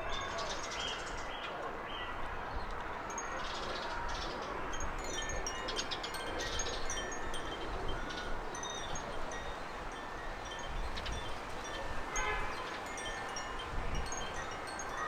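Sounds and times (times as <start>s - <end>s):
garden birds twittering: 0.0s - 15.0s
steady outdoor hiss: 0.0s - 15.0s.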